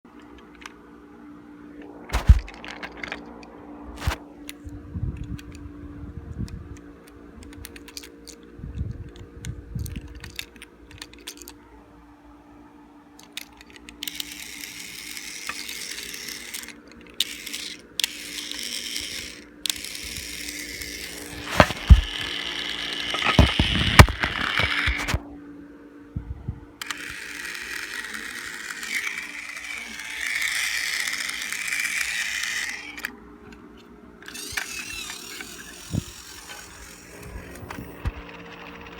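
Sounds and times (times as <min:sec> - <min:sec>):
toy motor and gears whirring: 0:02.1 - 0:03.3, 0:04.0 - 0:04.2, 0:07.4 - 0:11.6, 0:13.2 - 0:25.2, 0:26.8 - 0:33.2, 0:34.2 - 0:38.9
plastic toy clicks and knocks: 0:02.1 - 0:03.4, 0:07.4 - 0:08.4, 0:09.8 - 0:11.6, 0:13.2 - 0:25.2, 0:26.8 - 0:33.6, 0:34.2 - 0:38.9.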